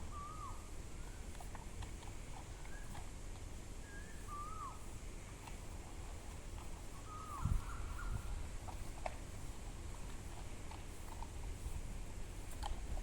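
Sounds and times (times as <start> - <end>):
downward-curling bird calls: 0.0 - 1.3, 3.8 - 4.9, 7.0 - 8.4
faint bird chirps: 0.0 - 1.3, 3.8 - 4.9, 7.0 - 8.4.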